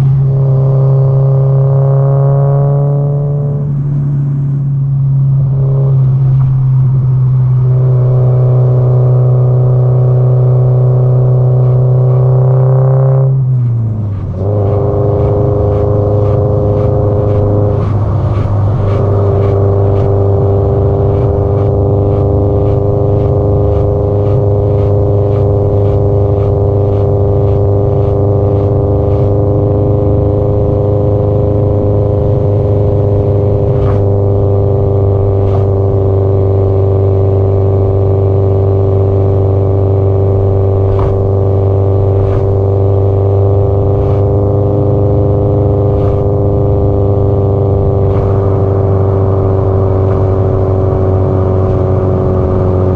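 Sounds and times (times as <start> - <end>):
car exhaust cruising: 0.0 - 52.9.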